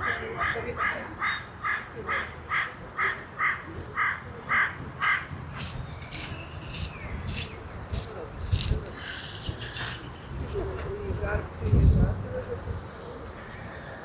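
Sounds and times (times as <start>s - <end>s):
crow cawing: 0.0s - 5.3s.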